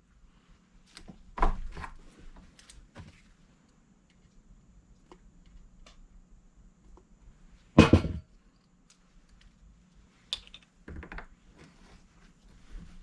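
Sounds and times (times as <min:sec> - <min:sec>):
faint steady hum: 0:00.0 - 0:13.0
objects clicking and knocking: 0:10.3 - 0:11.3.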